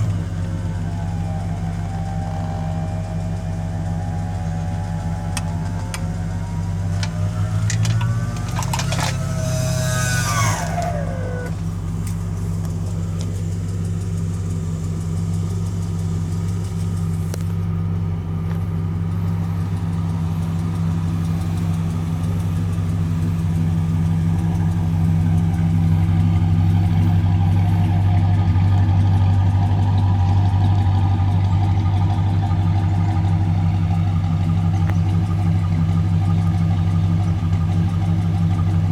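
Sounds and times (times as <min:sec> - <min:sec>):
short falling whine: 0:00.0 - 0:13.8
car engine idling: 0:00.0 - 0:38.9.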